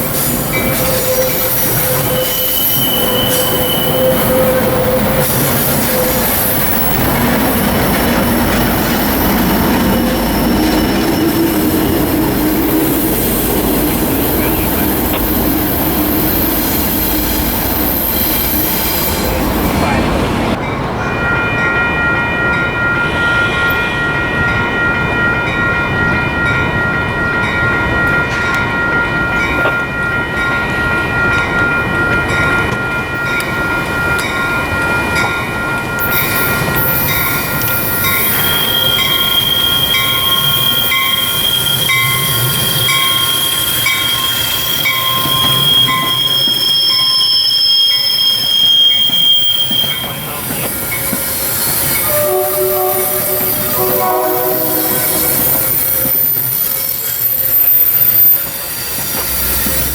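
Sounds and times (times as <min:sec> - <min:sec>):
steel wheels squealing: 0:00.0 - 0:20.0, 0:36.0 - 0:59.9
train rolling slowly: 0:00.0 - 0:59.9.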